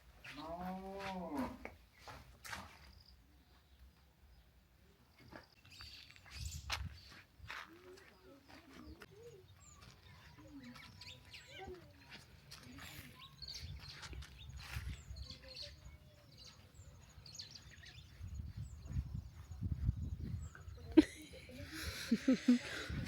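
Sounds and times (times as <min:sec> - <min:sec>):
birds chirping: 0:02.9 - 0:07.3, 0:07.9 - 0:23.0.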